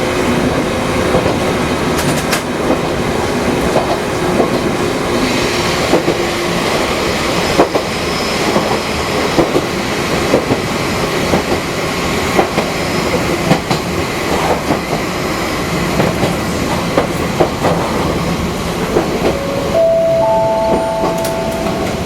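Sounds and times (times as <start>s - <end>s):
train running on track: 0.0s - 22.0s
three-note rising chime: 19.3s - 22.0s.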